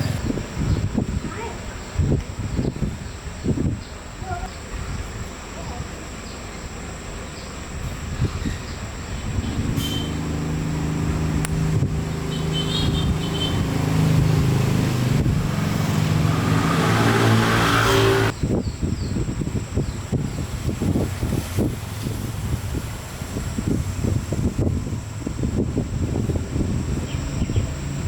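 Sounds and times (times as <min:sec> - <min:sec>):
motorcycle engine revving: 0:00.0 - 0:00.4, 0:08.3 - 0:18.4.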